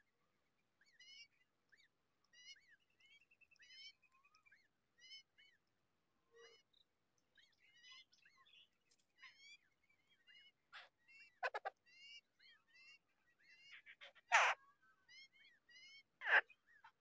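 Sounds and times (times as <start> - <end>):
birds chirping: 0.0 - 17.0
harsh bird calls: 13.6 - 14.7.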